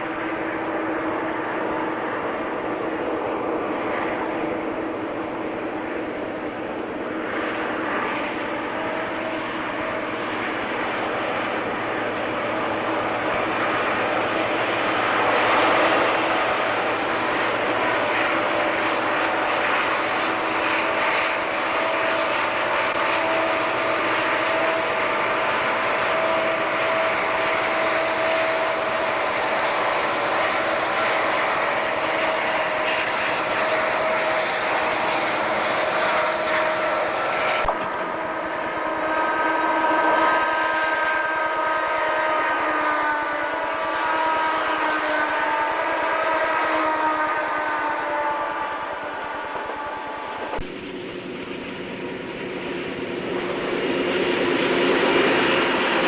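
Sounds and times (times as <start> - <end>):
diesel engine drone: 0.0 - 56.0
rail noise: 0.0 - 56.0
locomotive air horn: 7.8 - 50.6.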